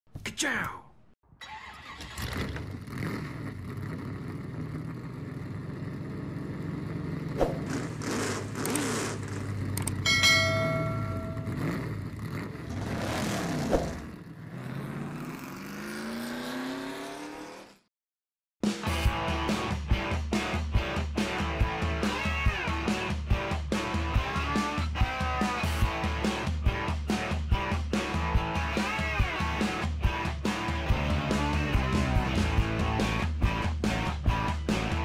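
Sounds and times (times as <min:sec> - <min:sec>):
engine revving: 0:01.4 - 0:17.9, 0:21.2 - 0:35.0
held high tone: 0:10.1 - 0:11.8.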